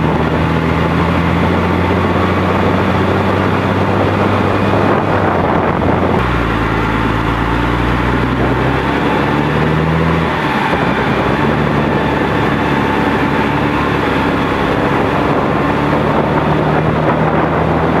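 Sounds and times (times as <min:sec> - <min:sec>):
tractor diesel engine roaring: 0:00.0 - 0:18.0.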